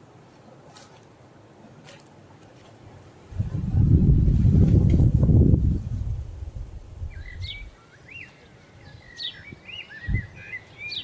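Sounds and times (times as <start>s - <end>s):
wild birds singing: 5.6s - 11.0s.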